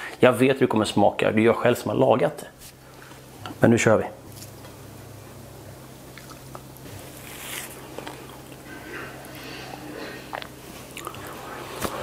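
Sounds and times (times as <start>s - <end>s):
person chewing food: 6.0s - 12.0s.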